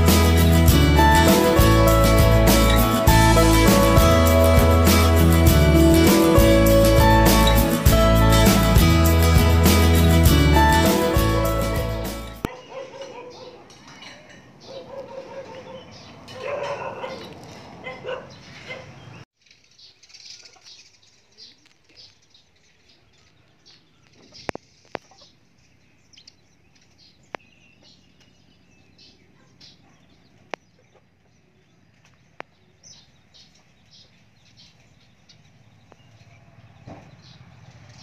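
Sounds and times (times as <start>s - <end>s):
small birds chirping: 14.6s - 38.0s.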